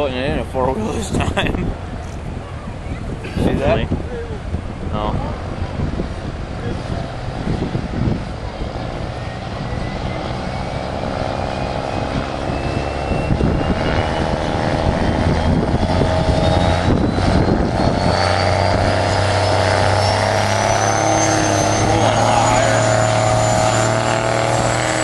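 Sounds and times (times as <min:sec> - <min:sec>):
diesel truck engine at full power: 0:00.0 - 0:25.0
turbocharger whistle: 0:08.9 - 0:25.0.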